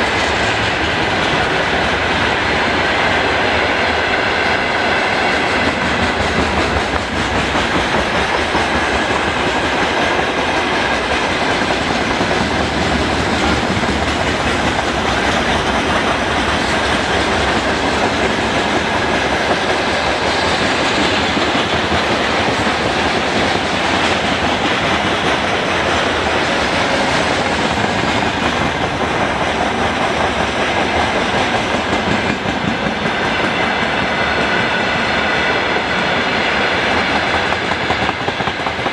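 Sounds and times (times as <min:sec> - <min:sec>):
train wheels clattering over rail joints: 0:00.0 - 0:38.9.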